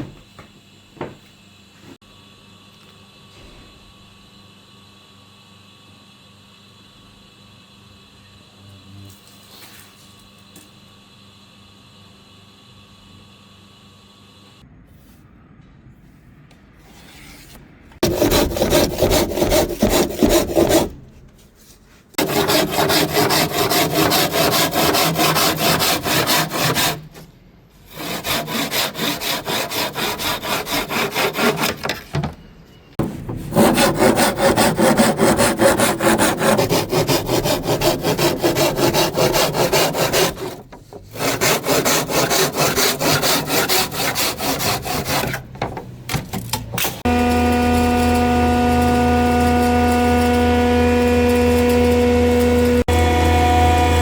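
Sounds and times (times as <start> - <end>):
scraping strokes on wood: 16.9 - 32.0, 33.0 - 45.4.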